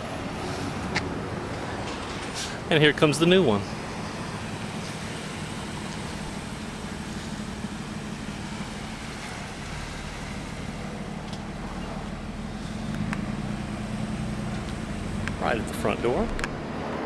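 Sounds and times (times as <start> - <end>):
car engine running: 0.0 - 17.0
road noise: 0.0 - 17.0.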